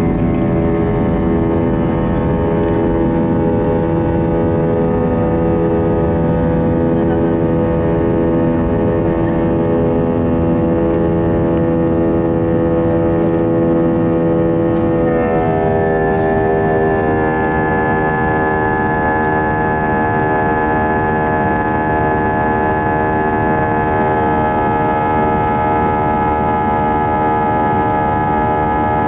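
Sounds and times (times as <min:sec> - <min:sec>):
jet engines at takeoff thrust: 0:00.0 - 0:29.0.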